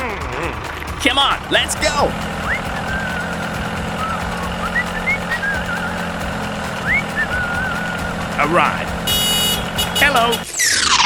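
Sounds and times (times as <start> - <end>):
vehicle engine droning: 0.0 - 10.6
high wavering whistles: 2.3 - 6.1, 6.8 - 8.2.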